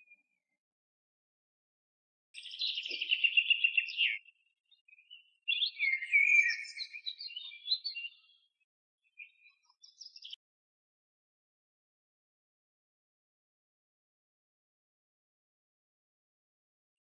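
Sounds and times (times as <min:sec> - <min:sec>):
small bird singing: 0:02.4 - 0:10.4.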